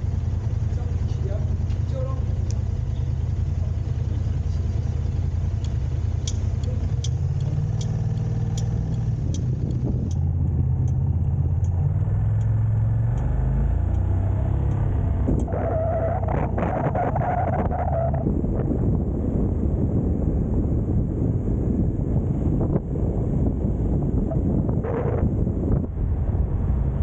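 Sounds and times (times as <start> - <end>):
vehicle engine droning: 0.0 - 27.0
light clicks: 5.6 - 11.0.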